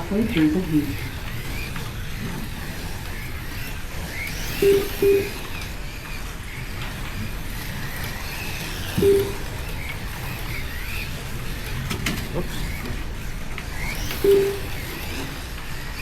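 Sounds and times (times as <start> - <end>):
slot car motors whining: 0.0 - 16.0
short loud steady tones: 4.6 - 5.5, 9.0 - 9.6, 14.2 - 15.0.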